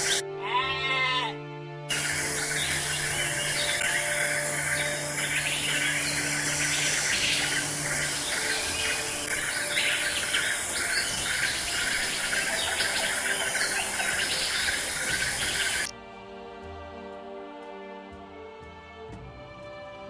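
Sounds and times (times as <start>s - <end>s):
birds chirping and calling: 0.0s - 0.2s, 1.9s - 15.9s
high insect-like hiss: 0.0s - 0.2s, 1.9s - 15.9s.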